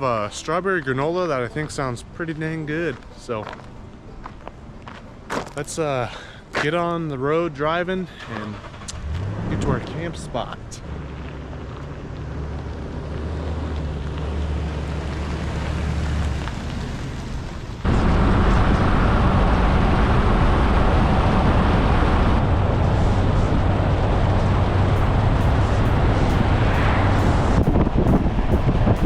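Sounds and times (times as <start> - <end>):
road and wind noise: 0.0 - 29.0
low engine hum: 8.1 - 29.0.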